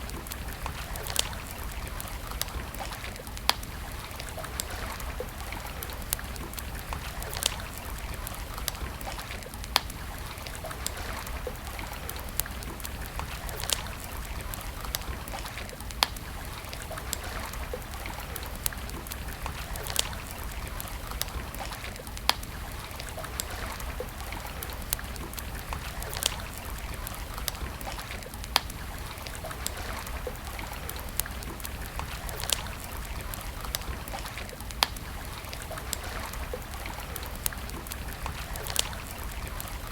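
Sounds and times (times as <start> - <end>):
campfire crackling: 0.0 - 39.9
sharp fire pops: 23.2 - 39.9.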